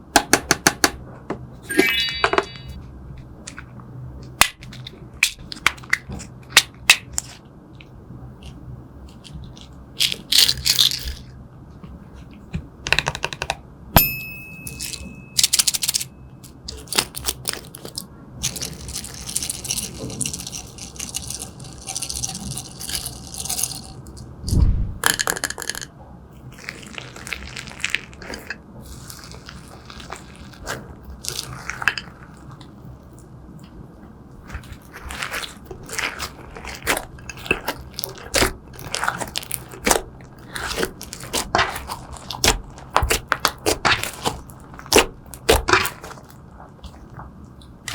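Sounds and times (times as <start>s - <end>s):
short ringing clink: 14.0s - 16.3s
sticky slime crackling by hand: 34.4s - 47.9s.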